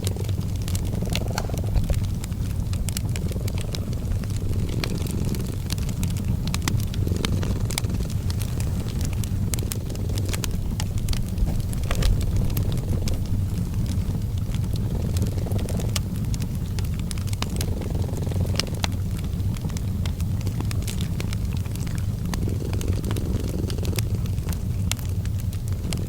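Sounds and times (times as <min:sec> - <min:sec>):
cat purring: 0:00.0 - 0:26.0
wood fire crackling: 0:00.0 - 0:26.0.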